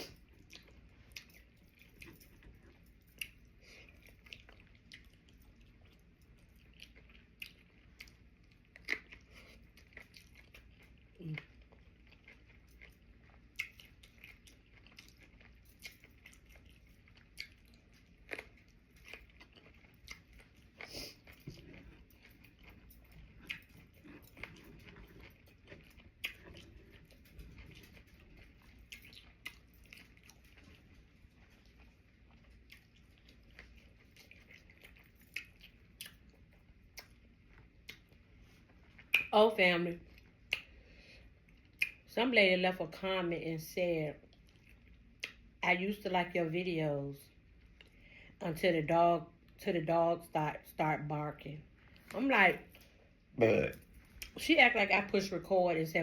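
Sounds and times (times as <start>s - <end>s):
person chewing: 0.0s - 39.3s, 40.1s - 42.1s, 44.3s - 45.5s, 52.8s - 54.4s.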